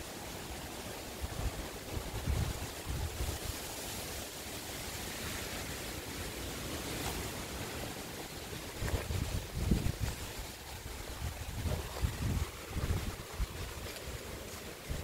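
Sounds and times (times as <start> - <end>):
strong wind through trees: 0.0 - 15.0
wind buffeting microphone: 1.1 - 4.0, 6.8 - 15.0.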